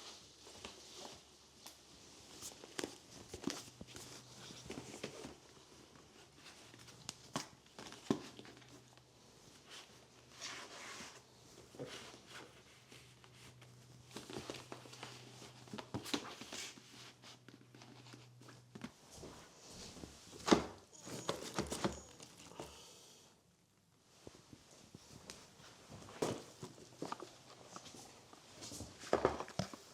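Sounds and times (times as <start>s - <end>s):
household items clicking and knocking: 20.9s - 22.7s.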